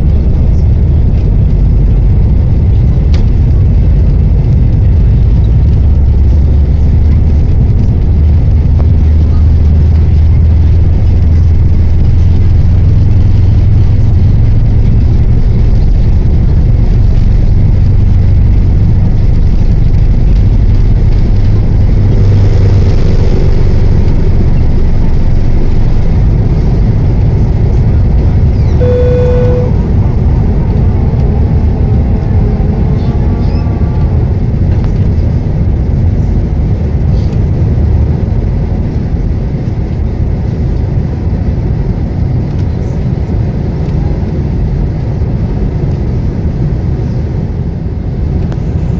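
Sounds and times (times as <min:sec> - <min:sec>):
airplane cabin rumble: 0:00.0 - 0:48.9
short chime: 0:28.8 - 0:29.8.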